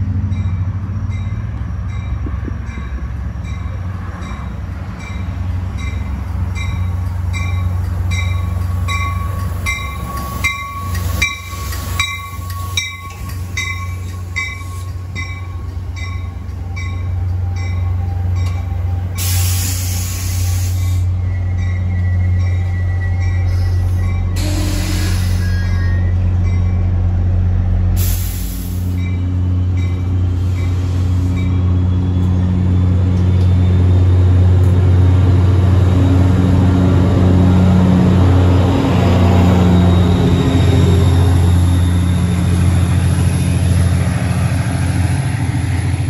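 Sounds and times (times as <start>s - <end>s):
hissing air: 19.1s - 21.2s.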